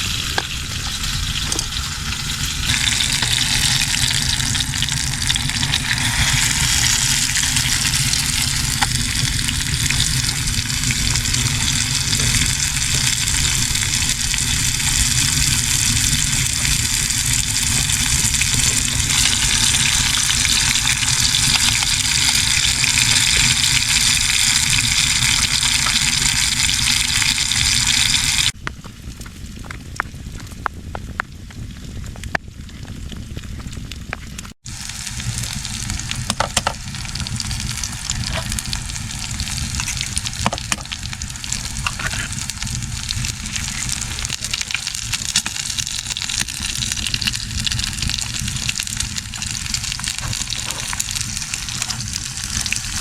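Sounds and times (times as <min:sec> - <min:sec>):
food sizzling in a pan: 0:00.0 - 0:28.6, 0:34.6 - 0:53.0
sharp crackles: 0:27.9 - 0:53.0.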